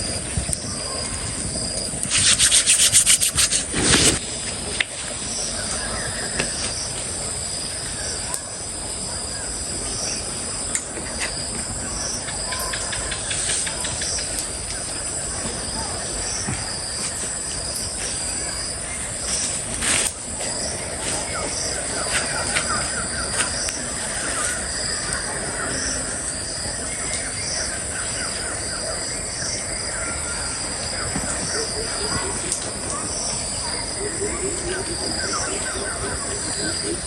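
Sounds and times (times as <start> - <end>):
insects chirring: 0.0 - 37.0
quick scraping: 2.0 - 4.3.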